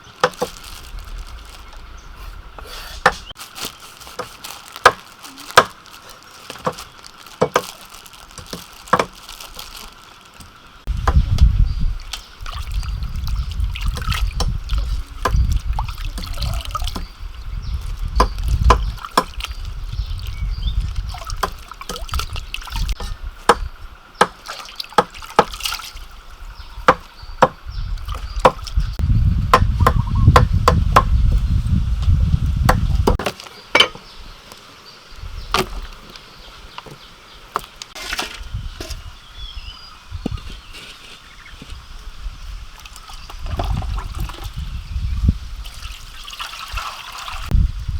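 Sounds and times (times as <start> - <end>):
water trickling and sloshing: 3.4 - 27.2, 27.8 - 29.0, 33.3 - 39.3, 41.6 - 47.9.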